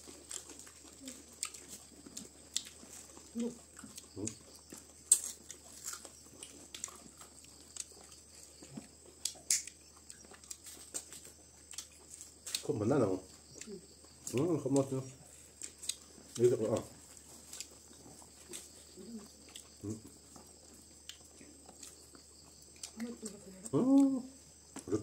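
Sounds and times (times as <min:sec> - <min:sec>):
people chewing and lip-smacking: 0:00.0 - 0:25.0.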